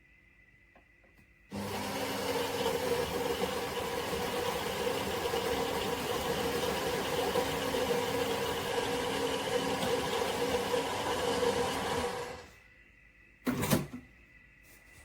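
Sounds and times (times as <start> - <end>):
espresso machine whirring: 1.5 - 12.5.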